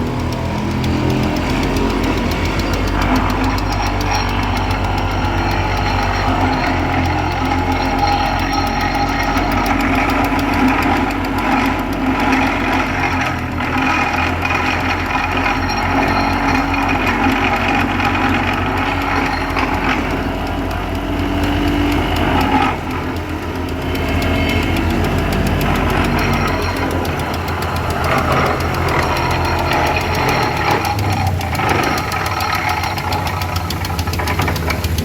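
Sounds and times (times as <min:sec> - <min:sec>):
heavy engine running: 0:00.0 - 0:35.0.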